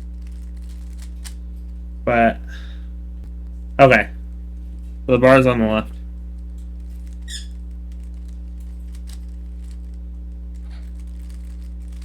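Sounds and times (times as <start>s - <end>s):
steady electrical hum: 0.0s - 12.0s
high squeak: 7.2s - 7.6s.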